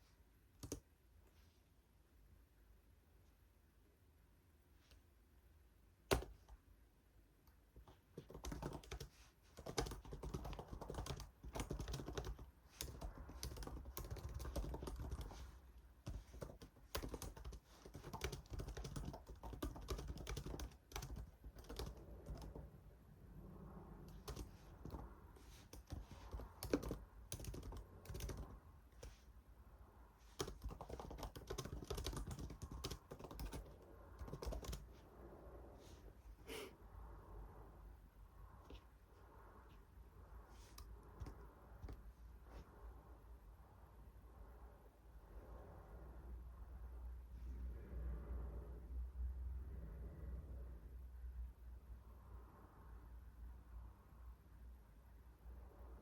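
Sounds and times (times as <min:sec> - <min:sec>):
typing on computer keyboard: 0:00.6 - 0:00.8, 0:06.1 - 0:06.6, 0:07.8 - 0:22.7, 0:24.0 - 0:29.2, 0:30.3 - 0:34.9, 0:40.8 - 0:42.0.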